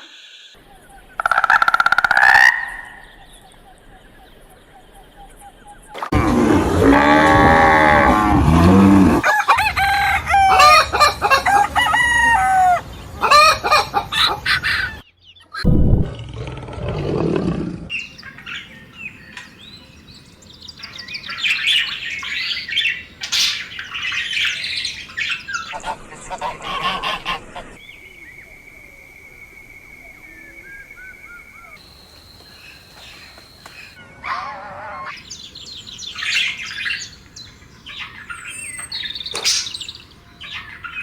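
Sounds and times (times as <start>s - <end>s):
faint chirping bird calls: 0.0s - 6.1s, 17.9s - 41.0s
low animal call: 6.1s - 9.3s
rooster crowing: 6.9s - 13.8s
chickens clucking: 9.2s - 15.0s, 25.5s - 27.8s.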